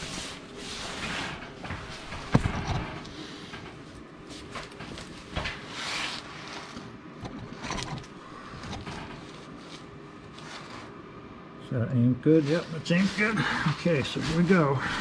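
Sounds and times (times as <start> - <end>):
short rustle: 7.6 - 11.0, 12.4 - 15.0.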